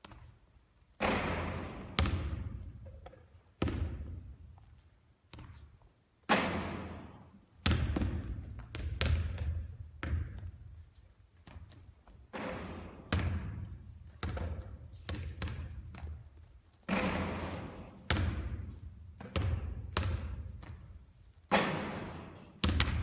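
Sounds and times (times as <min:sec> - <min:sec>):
basketball hitting rim: 0:01.0 - 0:02.7, 0:03.6 - 0:04.2, 0:06.3 - 0:10.5, 0:12.3 - 0:16.2, 0:16.9 - 0:20.8, 0:21.5 - 0:23.0
basketball bouncing on court: 0:01.0 - 0:04.4, 0:05.3 - 0:05.7, 0:06.3 - 0:10.8, 0:11.4 - 0:23.0.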